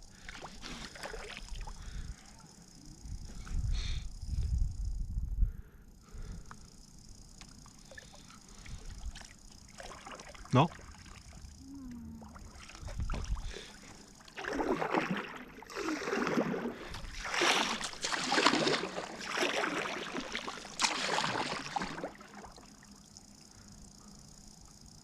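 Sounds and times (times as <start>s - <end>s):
paddle strokes splashing water: 0.2s - 1.7s, 7.9s - 11.5s, 12.4s - 22.7s.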